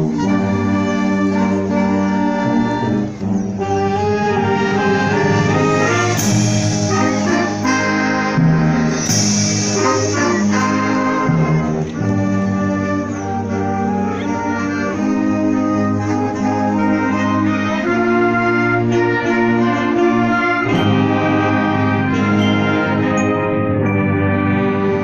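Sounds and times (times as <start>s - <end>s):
wind band playing: 0.0s - 25.0s
percussion crashes: 4.8s - 11.9s.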